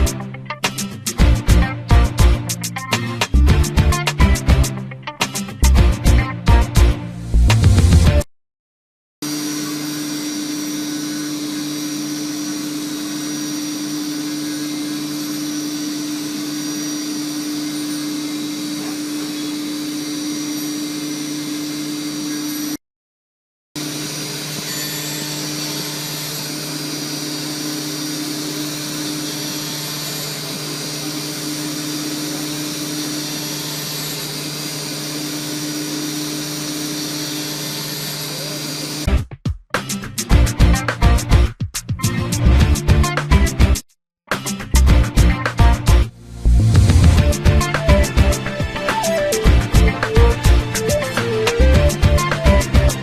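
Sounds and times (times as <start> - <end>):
milling machine whirring: 9.3 - 22.8, 23.8 - 39.1, 46.4 - 53.0.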